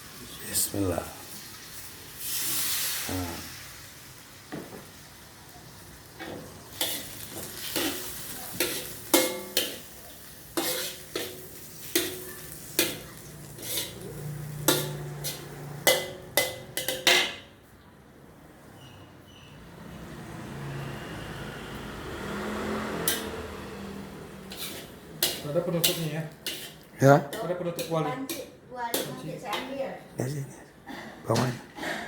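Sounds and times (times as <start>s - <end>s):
rice sizzling in a wok: 0.0s - 17.5s, 22.0s - 29.6s
spatula scraping a wok: 6.2s - 17.4s, 22.9s - 29.8s
spatula clanging on pan: 6.2s - 17.6s, 22.9s - 23.4s, 24.5s - 29.8s.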